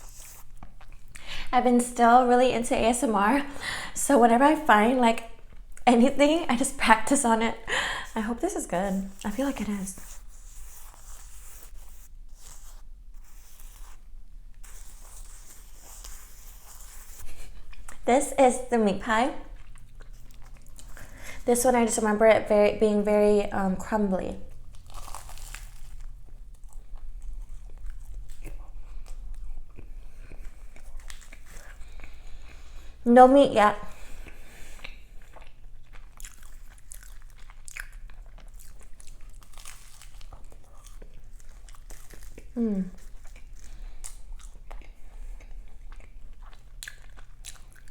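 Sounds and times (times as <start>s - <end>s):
chewing crunchy pastry: 0.0s - 1.3s, 8.0s - 18.1s, 19.4s - 21.4s, 24.4s - 33.0s, 33.9s - 47.9s.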